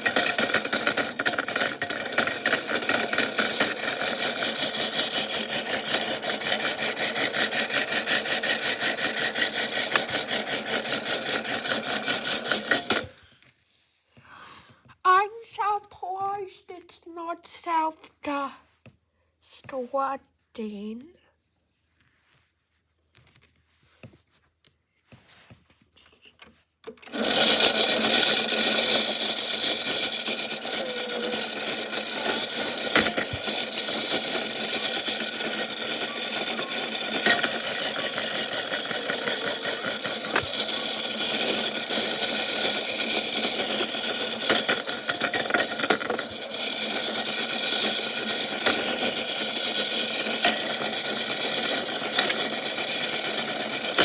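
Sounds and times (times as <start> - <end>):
washing machine whirring: 0.0 - 13.2, 26.9 - 54.0.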